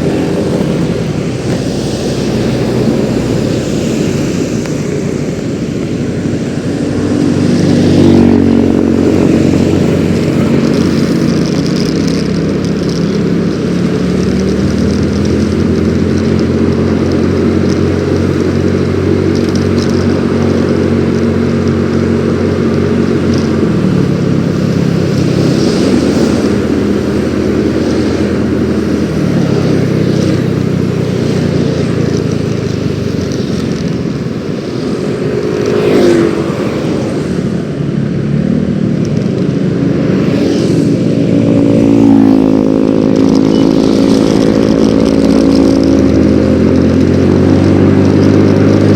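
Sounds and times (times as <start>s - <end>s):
scooter engine running: 0.0s - 48.9s.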